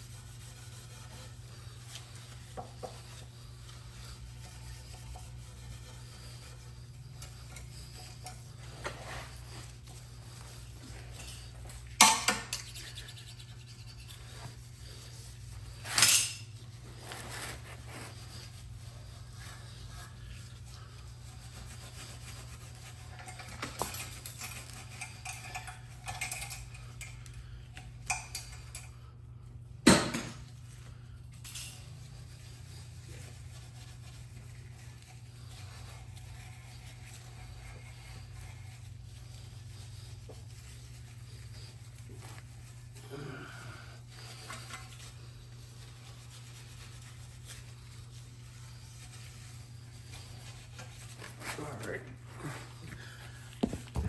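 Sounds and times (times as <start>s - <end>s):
steady low hum: 0.0s - 54.0s
metal tools clinking: 15.8s - 16.5s, 23.2s - 27.2s.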